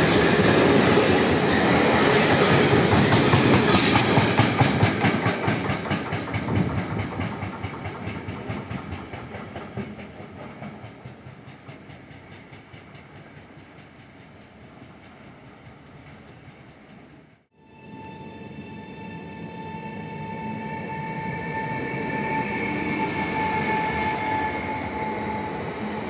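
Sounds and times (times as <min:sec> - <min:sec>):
train wheels clacking over rail joints: 0:00.1 - 0:17.5.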